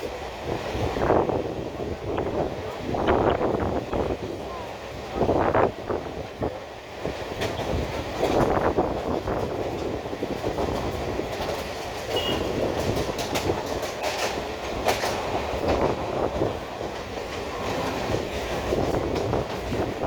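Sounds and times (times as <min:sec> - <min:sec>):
train wheels rumbling on rails: 0:00.0 - 0:20.0
wheels clicking over rail joints: 0:07.0 - 0:20.0.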